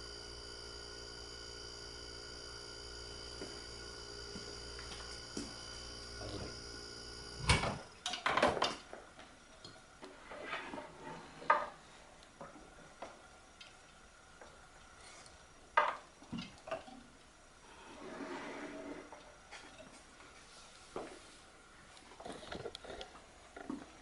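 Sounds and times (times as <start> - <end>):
refrigerator compressor humming: 0.0 - 8.0.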